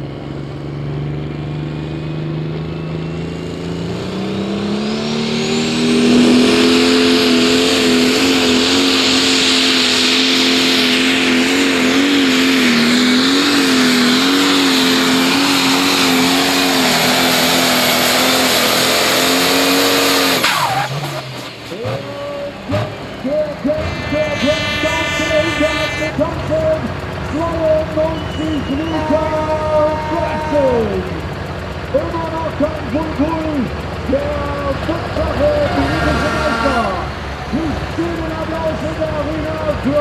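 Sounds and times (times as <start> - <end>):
diesel engine under load: 0.0 - 40.0
high turbo whine: 0.0 - 40.0.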